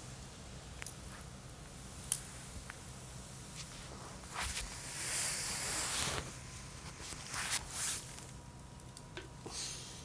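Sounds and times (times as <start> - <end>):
campfire crackling and popping: 0.0 - 7.4, 8.0 - 9.5
low background noise: 0.0 - 10.0.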